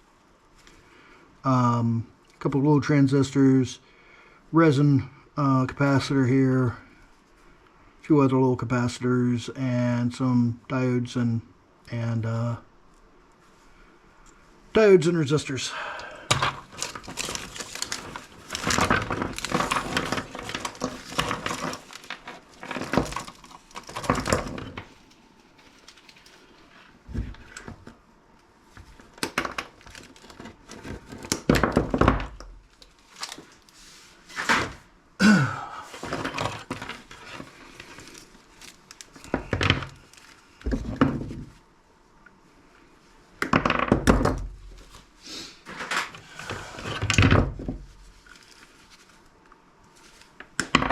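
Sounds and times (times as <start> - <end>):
electronic parts clattering: 16.2 - 27.9, 35.9 - 41.5.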